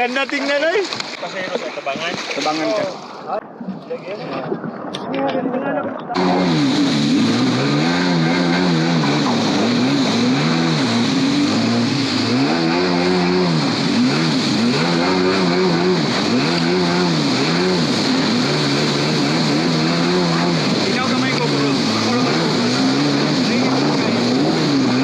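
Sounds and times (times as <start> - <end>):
jet ski engine revving: 6.1 - 25.0.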